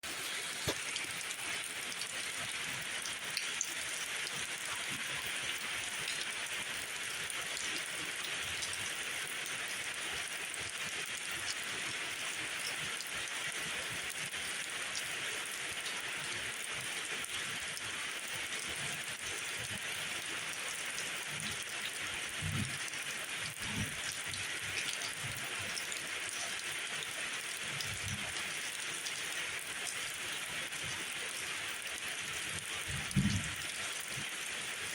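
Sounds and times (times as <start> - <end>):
steady rain falling: 0.0 - 34.9
raindrops ticking: 32.6 - 34.1
short low thuds: 33.1 - 33.5.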